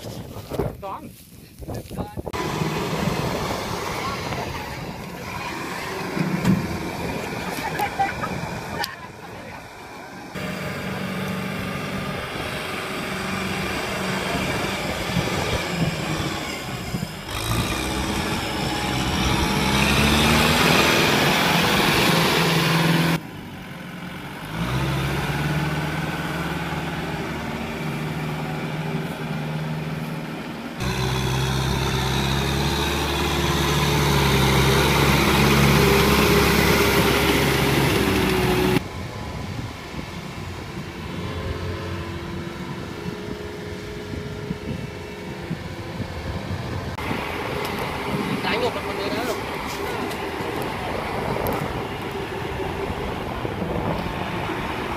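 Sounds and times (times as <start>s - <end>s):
tractor diesel engine revving: 2.3s - 39.2s.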